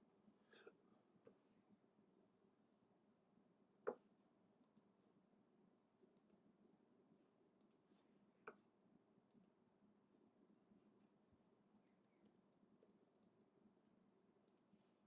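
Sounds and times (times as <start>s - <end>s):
computer mouse clicks: 11.9s - 13.5s, 14.5s - 14.7s.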